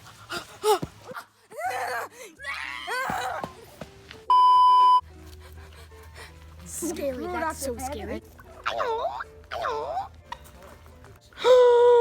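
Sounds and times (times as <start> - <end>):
electronic beep tone: 4.3 - 5.0.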